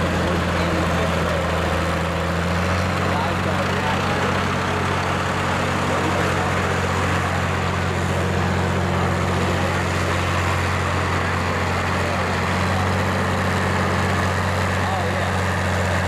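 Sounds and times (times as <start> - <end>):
tractor engine running steadily: 0.0 - 16.0.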